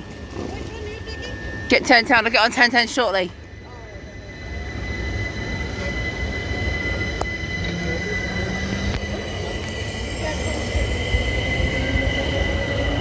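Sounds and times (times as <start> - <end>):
electric train rumble: 0.0 - 13.0
high-pitched train whine: 0.0 - 13.0.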